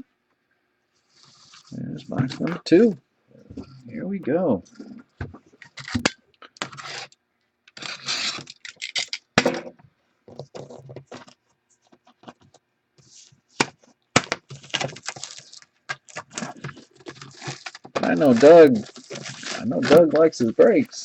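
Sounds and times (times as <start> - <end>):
wrapper crackling: 7.8 - 9.3, 14.2 - 20.6.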